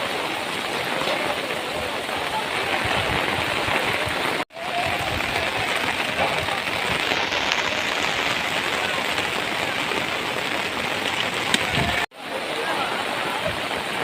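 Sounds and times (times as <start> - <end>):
torrential rain pouring: 0.0 - 14.0.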